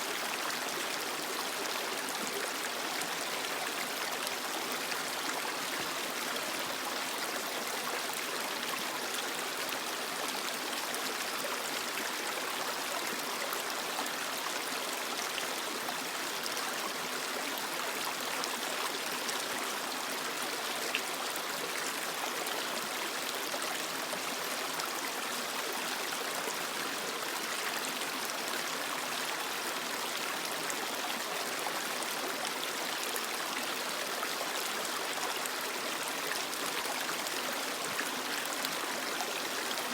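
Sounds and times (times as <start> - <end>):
creek water running over rocks: 0.0 - 39.9.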